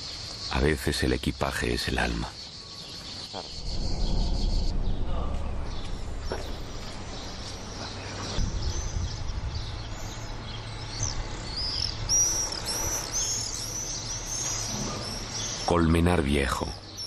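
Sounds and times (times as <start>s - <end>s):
small birds chirping: 0.0s - 17.0s
low background rumble: 3.5s - 15.4s.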